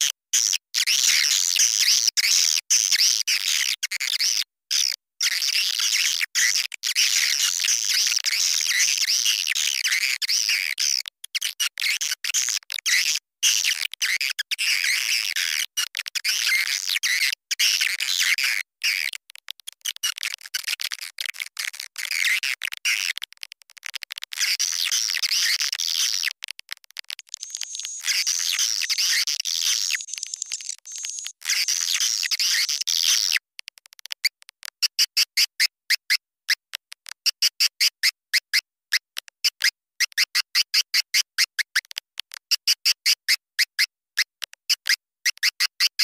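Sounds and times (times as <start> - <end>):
swiftlets twittering chirps: 27.2 - 32.8.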